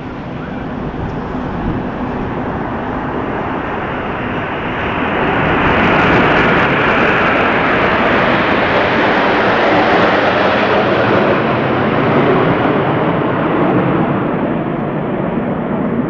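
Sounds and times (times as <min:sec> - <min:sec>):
jets roaring overhead: 0:00.0 - 0:16.0.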